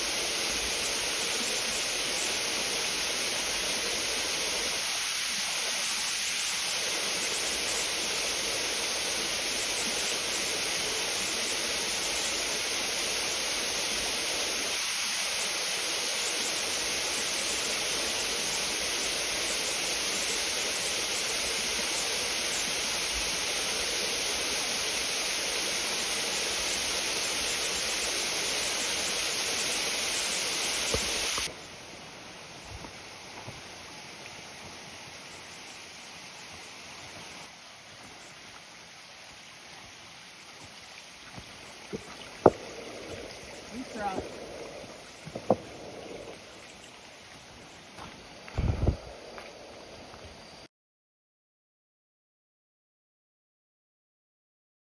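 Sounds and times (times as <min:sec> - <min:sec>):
waterfall roaring: 0:06.7 - 0:31.5, 0:41.9 - 0:46.8.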